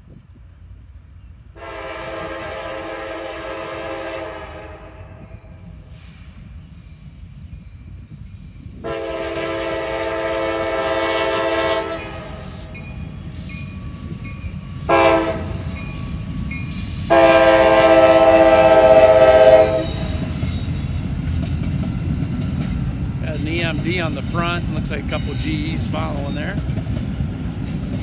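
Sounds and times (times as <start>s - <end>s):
train rumbling: 0.0s - 28.0s
locomotive air horn blasts: 1.6s - 5.0s, 8.8s - 12.6s, 14.9s - 15.7s, 17.1s - 20.3s.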